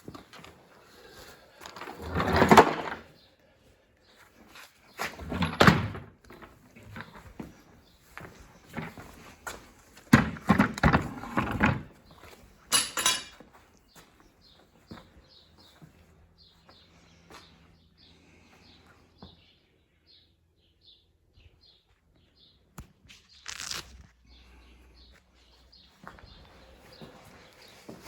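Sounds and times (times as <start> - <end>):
bird chirping: 13.8 - 23.5.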